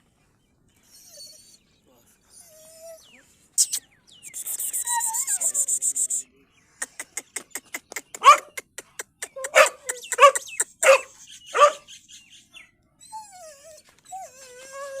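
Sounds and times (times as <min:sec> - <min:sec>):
dog whining: 0:04.7 - 0:05.7, 0:09.3 - 0:11.8, 0:13.0 - 0:15.0
dog barking: 0:08.2 - 0:08.6, 0:09.5 - 0:11.8.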